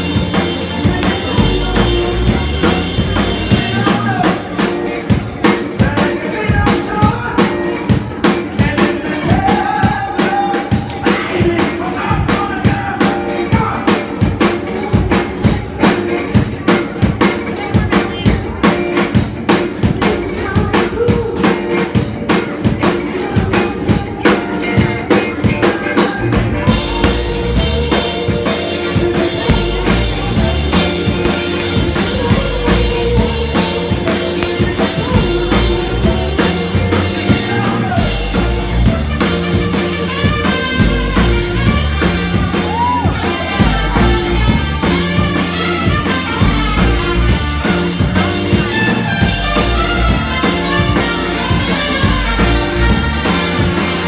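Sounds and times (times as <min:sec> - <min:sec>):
horns: 0:00.0 - 0:07.8, 0:23.1 - 0:54.0
bass: 0:00.0 - 0:54.0
drum groove: 0:00.0 - 0:54.0
soul band playing: 0:00.0 - 0:54.0.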